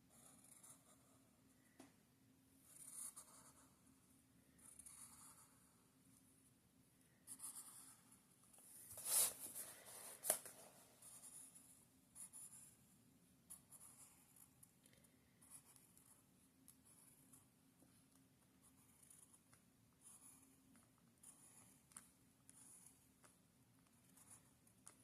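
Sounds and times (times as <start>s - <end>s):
pencil scratching on paper: 0.0s - 1.3s, 2.7s - 3.8s, 4.6s - 5.9s, 7.3s - 8.3s, 13.5s - 14.5s, 21.2s - 25.0s.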